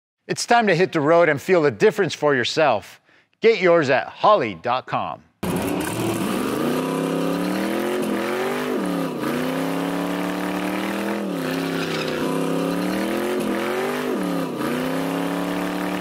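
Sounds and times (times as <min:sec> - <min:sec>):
car engine revving high: 0:05.4 - 0:16.0.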